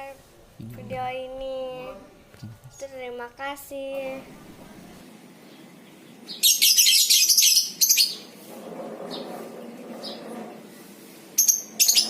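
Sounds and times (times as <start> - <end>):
lovebirds shrill chattering trill: 11.4 - 12.0.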